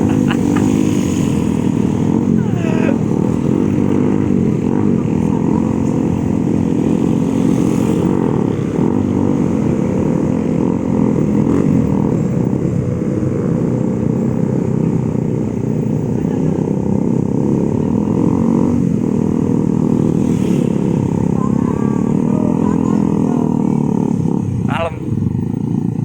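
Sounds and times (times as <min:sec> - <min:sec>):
motorcycle engines running: 0:00.0 - 0:26.0.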